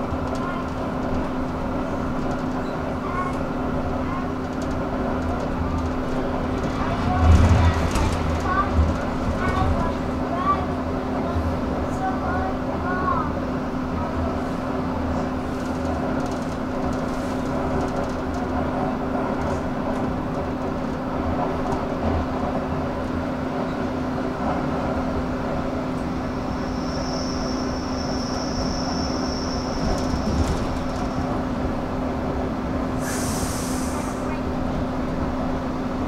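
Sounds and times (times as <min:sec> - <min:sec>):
train hum and rumble: 0:00.0 - 0:36.0
thin high whine: 0:26.5 - 0:30.3.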